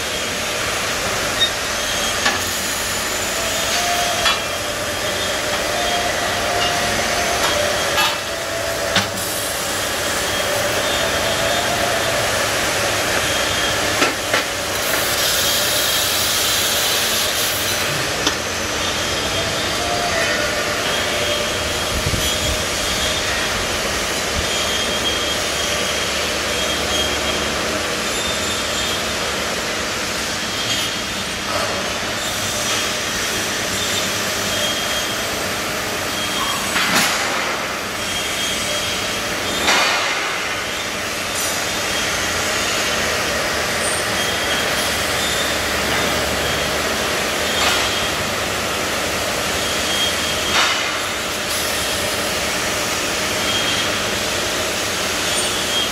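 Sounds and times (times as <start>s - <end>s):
laser cutting machine hiss: 0.0s - 55.9s.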